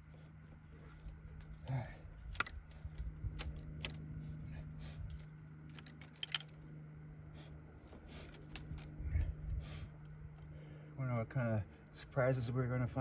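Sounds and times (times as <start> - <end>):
steady low hum: 0.0 - 13.0
metallic clicks of hand tools: 5.1 - 6.6.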